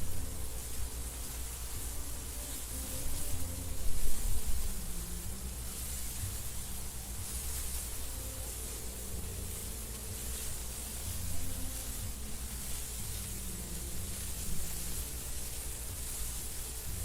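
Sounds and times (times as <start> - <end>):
wind blowing through grass: 0.0 - 17.0.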